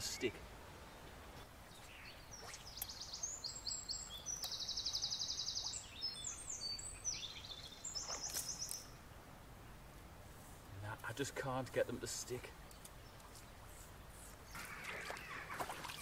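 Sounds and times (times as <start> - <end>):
songbird singing: 0.0 - 10.2, 10.8 - 16.0
shallow river flowing: 12.5 - 16.0.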